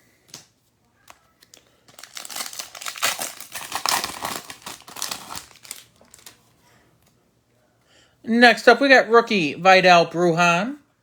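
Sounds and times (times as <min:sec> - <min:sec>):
foil wrapper crinkling: 0:01.0 - 0:06.5.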